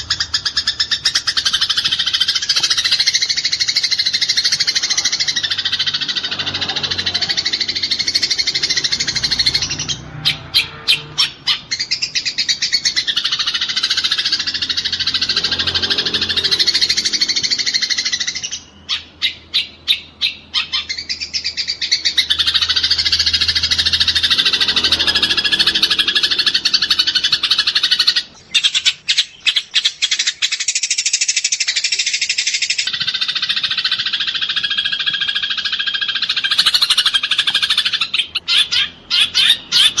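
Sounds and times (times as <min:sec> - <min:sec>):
rapid stuttering chatter: 0:00.0 - 0:18.3, 0:22.3 - 0:28.4
sparrows chirping as a flock: 0:00.0 - 0:40.0.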